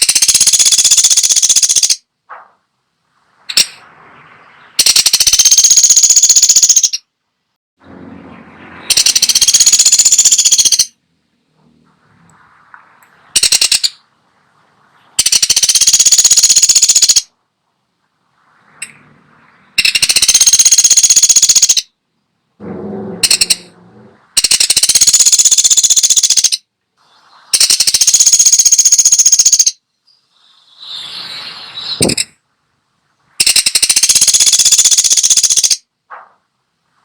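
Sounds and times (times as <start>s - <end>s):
woodpecker rattling trills: 0.0s - 2.0s, 3.5s - 7.1s, 8.7s - 11.0s, 13.3s - 14.0s, 15.2s - 17.3s, 19.6s - 21.9s, 22.6s - 26.6s, 27.6s - 30.9s, 33.4s - 35.9s
low rough bird call: 22.6s - 29.0s, 29.8s - 33.4s.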